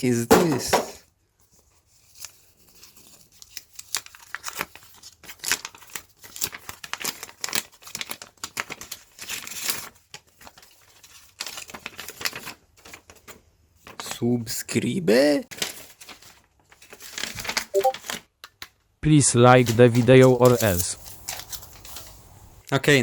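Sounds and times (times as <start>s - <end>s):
packaging crinkling and tearing: 2.0s - 14.0s, 15.5s - 18.2s, 19.6s - 22.2s.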